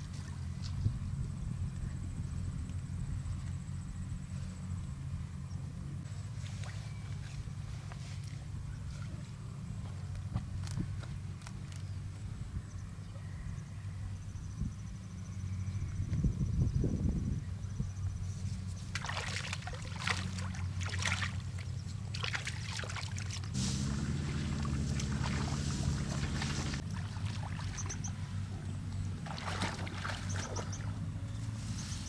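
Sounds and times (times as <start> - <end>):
rustling hissing noise: 23.5 - 26.8
small engine humming: 23.5 - 32.0.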